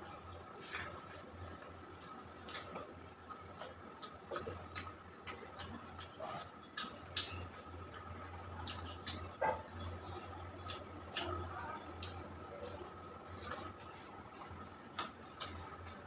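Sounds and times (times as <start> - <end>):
wet chewing mouth clicks: 2.0 - 13.9.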